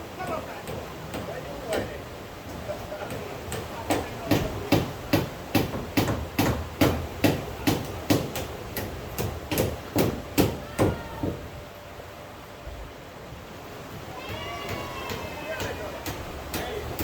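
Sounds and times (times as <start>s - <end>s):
regular sharp knocks: 3.1s - 11.4s.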